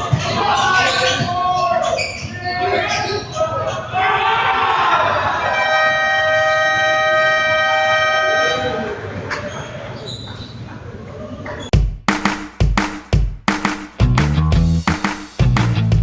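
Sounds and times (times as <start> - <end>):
crowd noise in large hall: 0.0 - 11.8
buzzer long steady tone: 5.6 - 8.8
music with heavy beats: 11.7 - 16.0.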